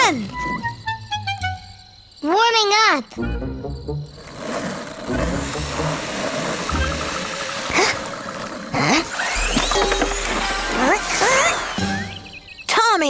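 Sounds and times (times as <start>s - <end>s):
background music: 3.1s - 8.3s, 9.0s - 12.7s
toy car engine running: 8.8s - 12.2s.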